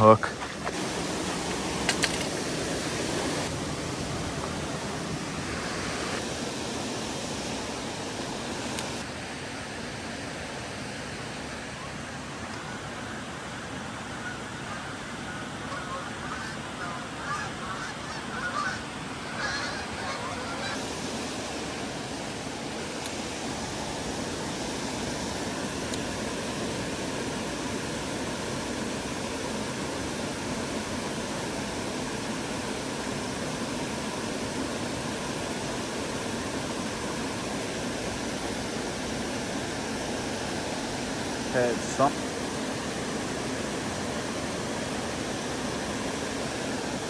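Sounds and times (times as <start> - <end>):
flowing creek water: 0.0 - 47.0
honking bird calls: 14.2 - 20.8.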